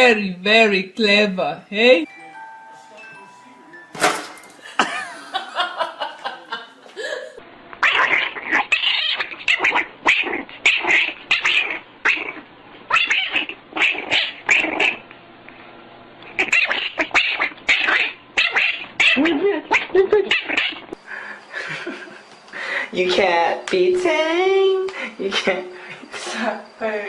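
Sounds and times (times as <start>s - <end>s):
cat yowling: 7.8s - 15.0s, 16.4s - 21.0s.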